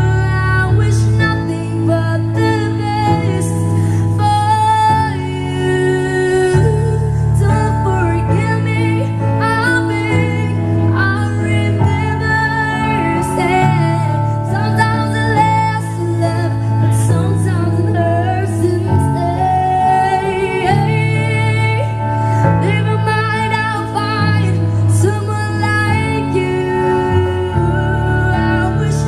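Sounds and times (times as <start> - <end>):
woman singing slow melody: 0.0 - 29.0.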